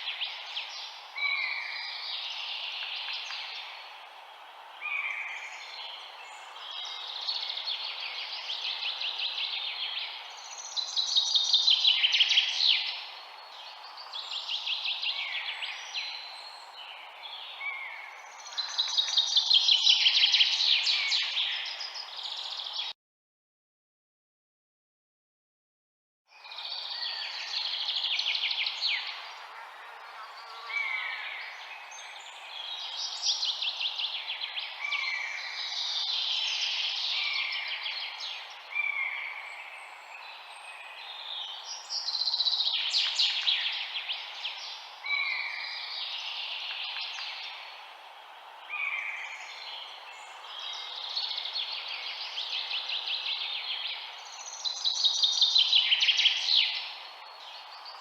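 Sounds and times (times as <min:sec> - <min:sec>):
songbirds chirping and singing: 0:00.0 - 0:23.0, 0:26.3 - 0:58.0
steady background hiss: 0:26.6 - 0:58.0.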